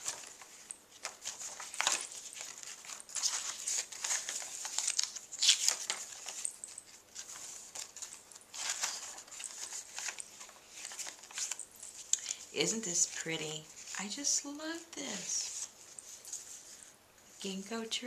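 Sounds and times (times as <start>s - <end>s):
paper rustling and crinkling: 0.0s - 14.2s, 15.0s - 16.9s.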